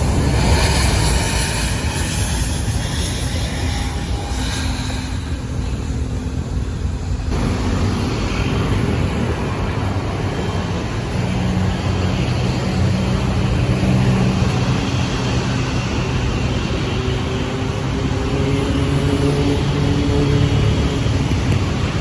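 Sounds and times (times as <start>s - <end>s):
jet engine rumbling: 0.0s - 22.0s.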